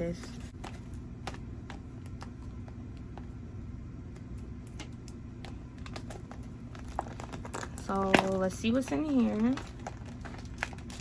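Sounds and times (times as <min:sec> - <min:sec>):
low room hum: 0:00.0 - 0:11.0
paper and packaging rustling: 0:05.5 - 0:11.0.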